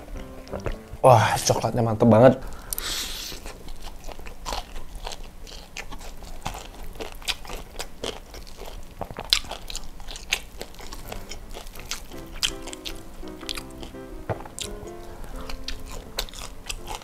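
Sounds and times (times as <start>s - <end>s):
crunchy chewing: 2.5s - 17.0s.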